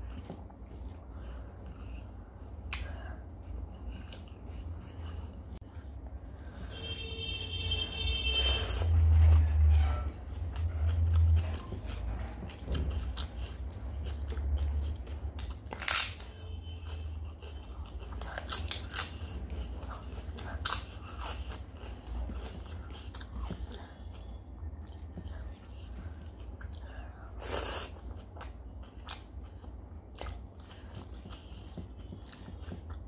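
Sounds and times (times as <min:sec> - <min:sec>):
person chewing: 0:00.0 - 0:07.3, 0:08.4 - 0:33.0
crunches of crisp food: 0:12.7 - 0:33.0.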